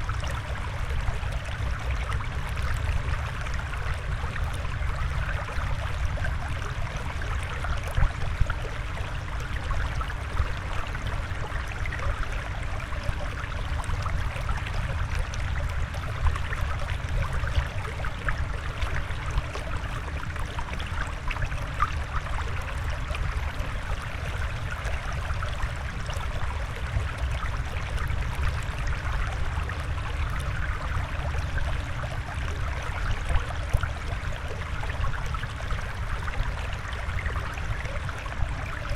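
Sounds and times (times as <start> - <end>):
trickling water: 0.0 - 38.9.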